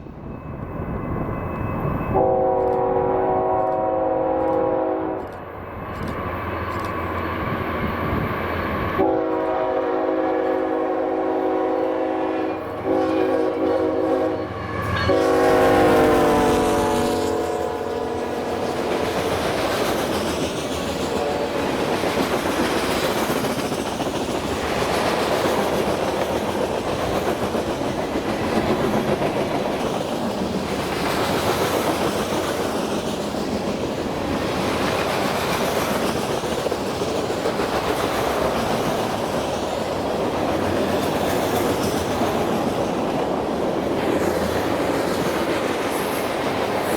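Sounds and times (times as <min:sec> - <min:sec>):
locomotive horn blasts: 0:02.1 - 0:05.4, 0:09.0 - 0:18.8, 0:21.1 - 0:21.7
train wheels clattering over rails: 0:18.4 - 0:46.9.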